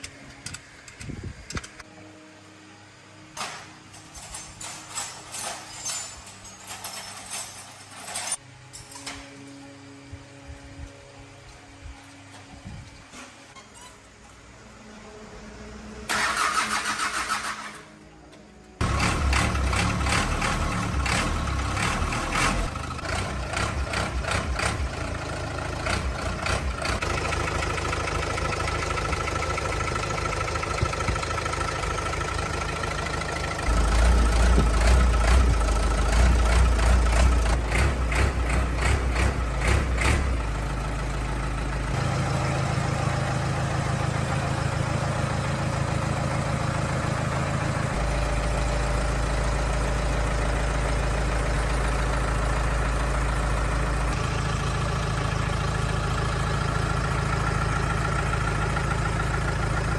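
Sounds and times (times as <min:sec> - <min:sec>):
truck engine idling roughly: 0:18.8 - 0:59.9.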